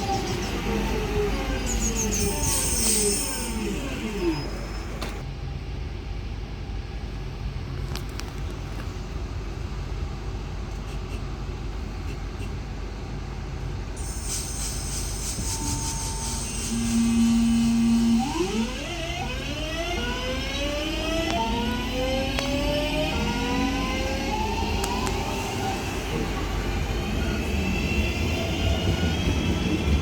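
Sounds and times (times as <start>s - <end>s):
train motor whine: 0.0s - 5.2s, 14.0s - 30.0s
low train rumble: 0.0s - 30.0s
rising tones: 16.4s - 29.9s.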